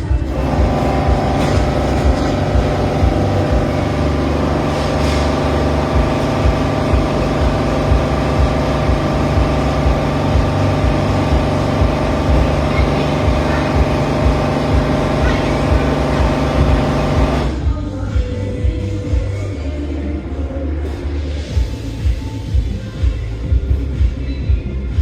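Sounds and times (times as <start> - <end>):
vehicle engine running: 0.0 - 19.5.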